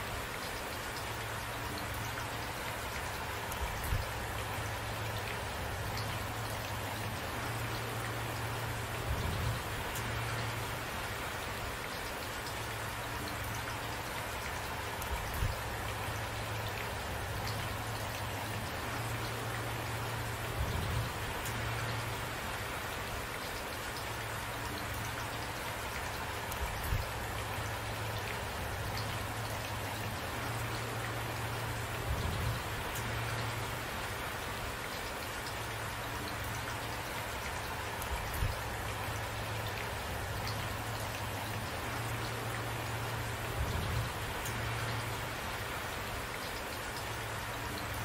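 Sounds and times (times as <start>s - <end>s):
steady rain falling: 0.0s - 48.0s.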